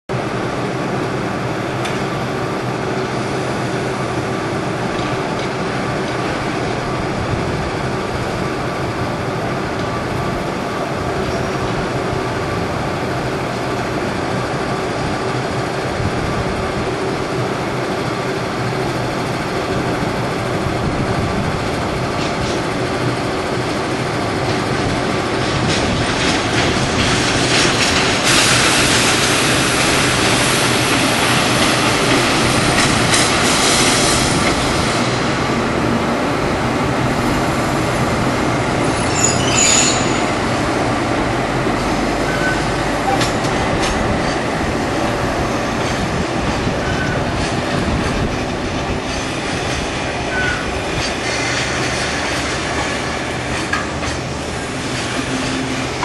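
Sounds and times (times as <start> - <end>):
train wheels rumbling and clattering: 0.1 - 56.0
high-pitched wheel squeal: 39.0 - 40.4, 42.2 - 43.2.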